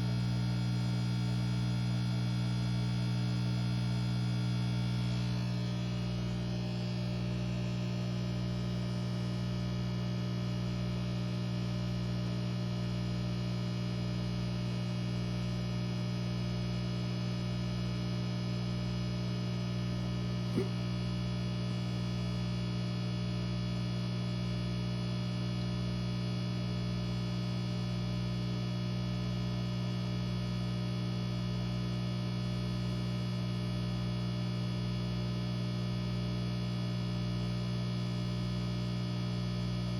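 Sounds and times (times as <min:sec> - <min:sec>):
aquarium air pump humming: 0:00.0 - 0:10.7, 0:20.0 - 0:23.1.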